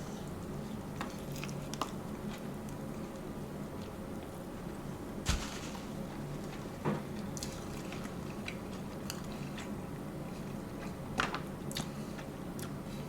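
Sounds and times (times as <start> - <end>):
steady low hum: 2.9 - 10.6.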